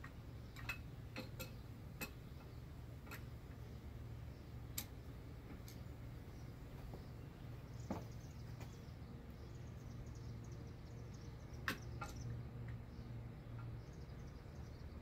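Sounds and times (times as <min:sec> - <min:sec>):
metal engine parts clicking: 0:00.0 - 0:03.5.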